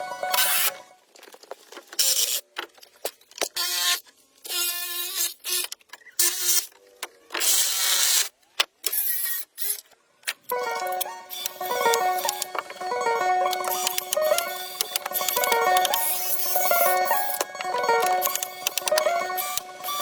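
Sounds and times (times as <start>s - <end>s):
clicks: 10.2s - 20.0s.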